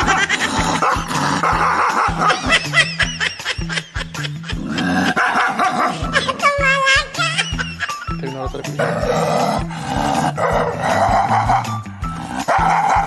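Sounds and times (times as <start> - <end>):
dog barking aggressively: 0.0 - 2.9, 4.6 - 6.9, 8.8 - 13.0
background music with steady beat: 0.0 - 13.0.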